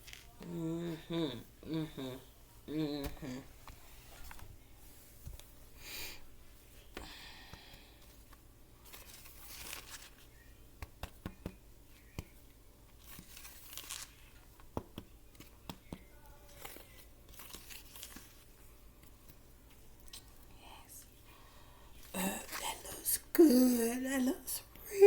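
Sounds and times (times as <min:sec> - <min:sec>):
crisp cornstarch crunching: 0:13.0 - 0:14.4.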